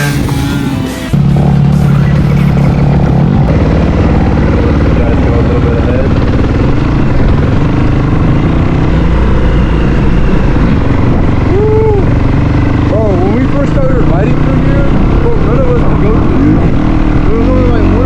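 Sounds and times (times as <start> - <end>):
dirt bike engine running: 0.0 - 18.0.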